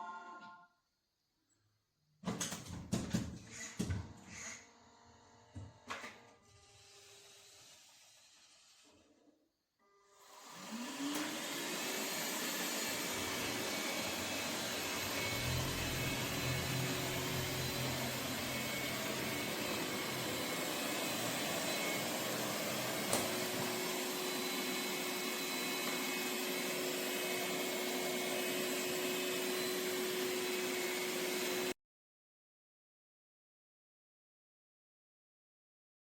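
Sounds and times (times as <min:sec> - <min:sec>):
robot vacuum cleaner whirring: 0:03.5 - 0:09.3, 0:10.2 - 0:31.7.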